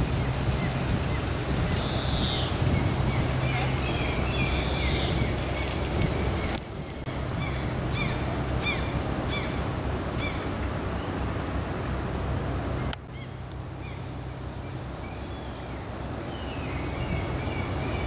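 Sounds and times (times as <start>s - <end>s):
low outdoor rumble: 0.0s - 18.0s
bird chirping: 0.2s - 12.2s.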